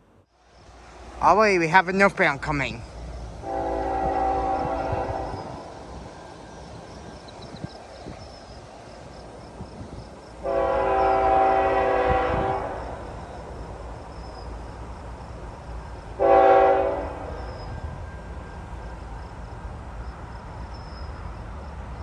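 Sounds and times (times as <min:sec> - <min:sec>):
low rumble of train: 0:00.0 - 0:22.0
locomotive air horn blasts: 0:03.4 - 0:05.7, 0:10.4 - 0:13.0, 0:16.2 - 0:17.4.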